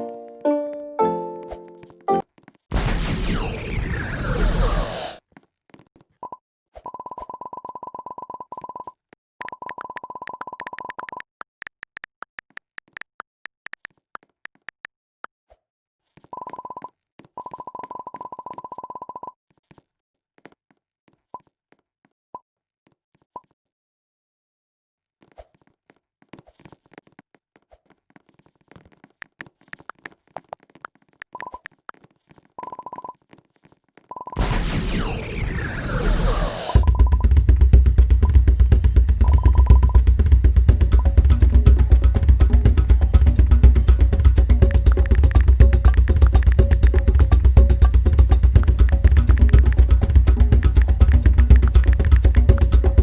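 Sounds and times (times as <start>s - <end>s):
steady electronic beep: 36.2s - 37.3s, 38.2s - 41.2s.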